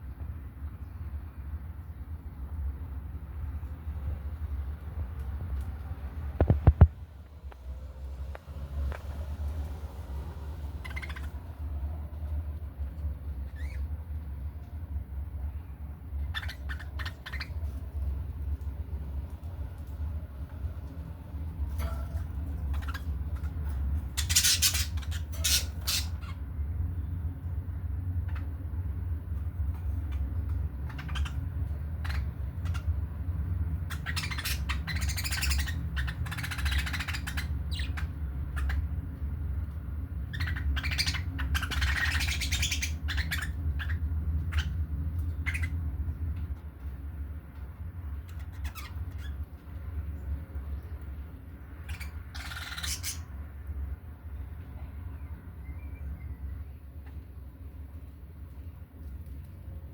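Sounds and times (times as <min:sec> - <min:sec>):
steady low hum: 0:00.0 - 0:59.9
budgerigars chattering: 0:10.8 - 0:11.6, 0:13.4 - 0:13.9, 0:16.2 - 0:17.7, 0:21.8 - 0:26.4, 0:28.2 - 0:28.6, 0:30.0 - 0:33.0, 0:33.8 - 0:38.9, 0:40.2 - 0:45.8, 0:48.2 - 0:49.5, 0:51.8 - 0:53.3.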